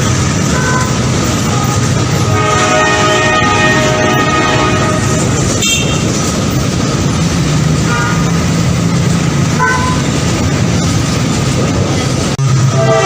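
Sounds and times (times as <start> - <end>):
rolling stock noise: 0.0 - 13.0
train engine drone: 0.0 - 13.0
train horn toots: 0.5 - 6.2, 7.8 - 8.4, 9.6 - 10.2, 12.6 - 13.0.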